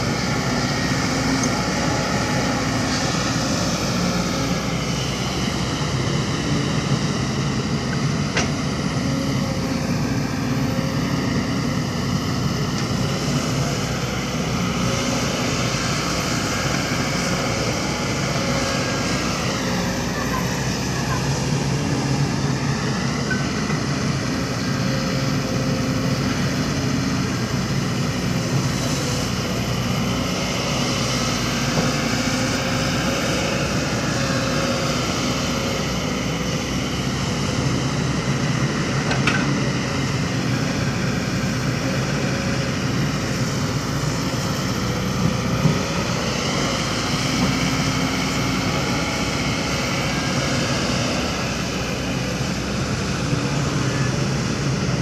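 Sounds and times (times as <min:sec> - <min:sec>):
construction machinery diesel engines: 0:00.0 - 0:55.0.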